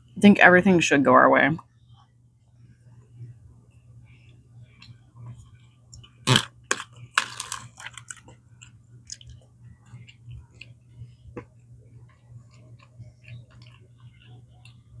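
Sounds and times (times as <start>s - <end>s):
faint low hum: 0.0s - 15.0s
chewing: 4.2s - 15.0s
crunchy bites: 6.0s - 9.4s.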